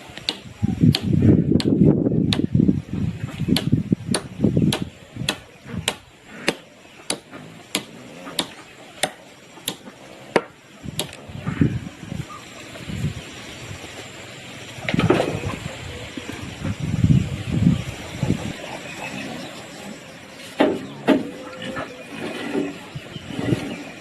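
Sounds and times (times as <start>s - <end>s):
tool striking sharp knocks: 3.5s - 11.2s.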